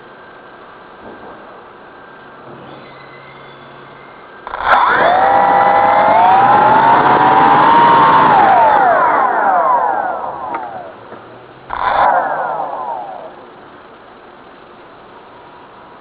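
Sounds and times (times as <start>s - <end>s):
drone propellers whining: 4.3s - 14.1s.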